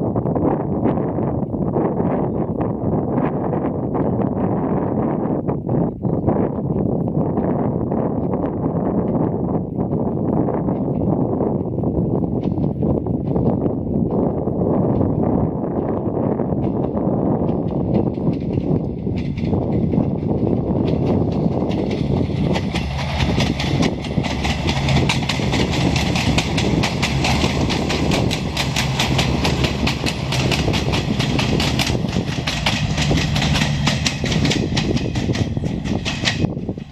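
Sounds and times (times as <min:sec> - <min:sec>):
train engine drone: 0:06.7 - 0:36.9
wheels clicking on rails: 0:10.6 - 0:36.9.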